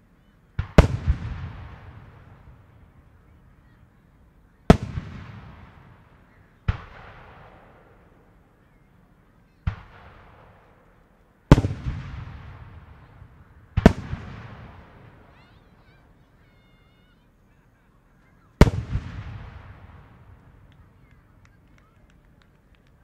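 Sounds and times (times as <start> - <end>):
firework shells exploding: 9.7 - 15.4, 18.6 - 21.4.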